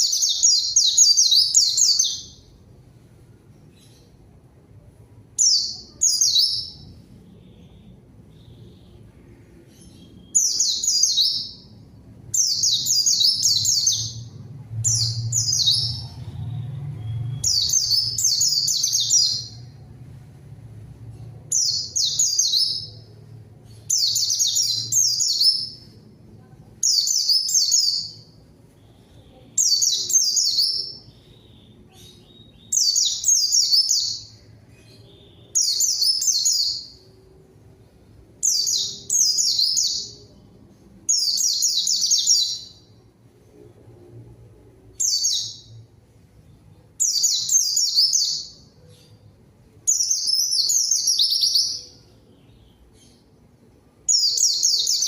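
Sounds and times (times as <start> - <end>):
bird twittering song: 9.6 - 19.8, 47.0 - 49.2, 54.1 - 55.0.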